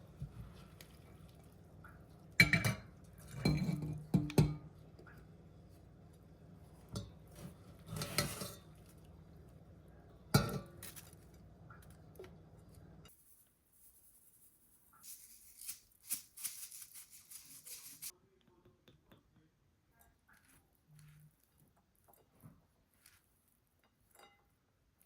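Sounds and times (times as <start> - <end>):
utensils and dishes clinking: 6.9 - 8.8
scratchy cutting or scraping: 13.8 - 18.1.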